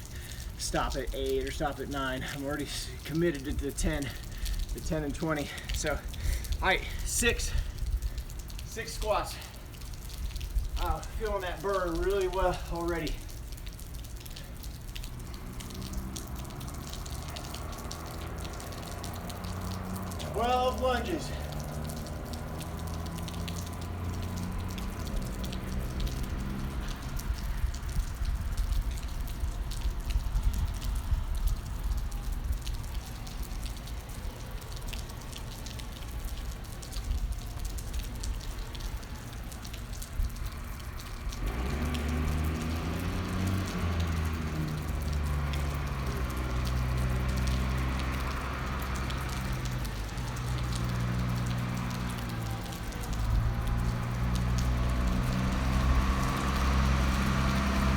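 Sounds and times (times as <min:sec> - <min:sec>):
rain pattering: 0:00.0 - 0:57.9
sharp drips: 0:00.0 - 0:57.9
vehicle engine running low: 0:09.1 - 0:57.9.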